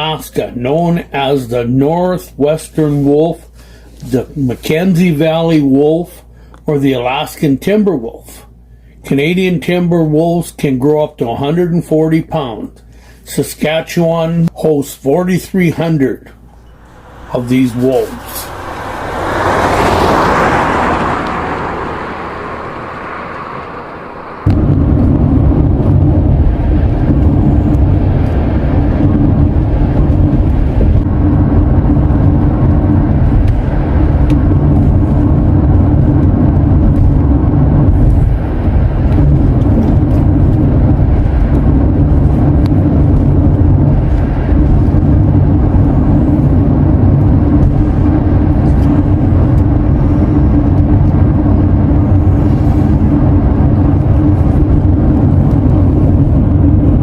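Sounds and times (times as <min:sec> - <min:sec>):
car engine and tyres rumbling: 0:15.8 - 0:57.0.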